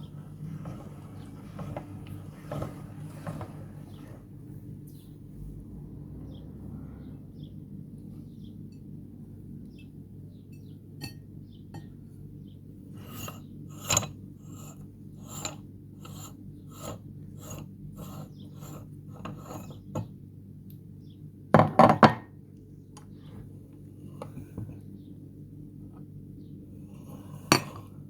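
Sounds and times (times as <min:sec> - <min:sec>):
meat grinder rasping biscuits: 0:13.0 - 0:20.0.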